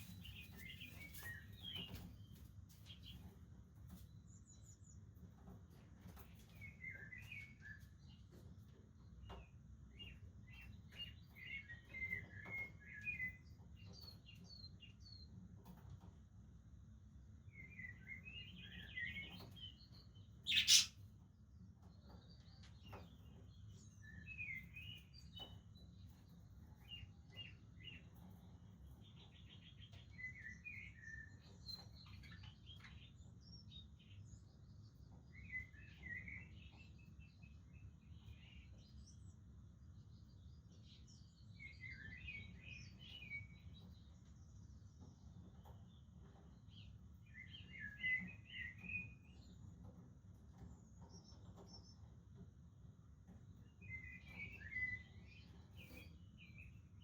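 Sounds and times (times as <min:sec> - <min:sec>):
budgerigars chirping: 0:20.5 - 0:20.9.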